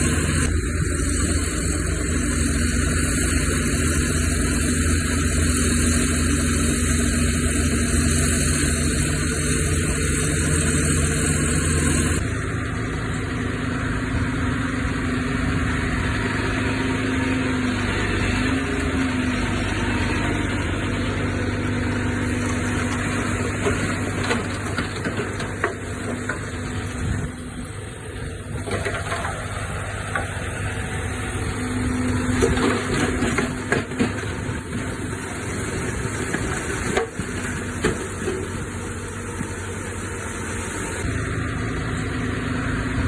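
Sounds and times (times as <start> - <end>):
diesel machinery engine drone: 0.0 - 43.0.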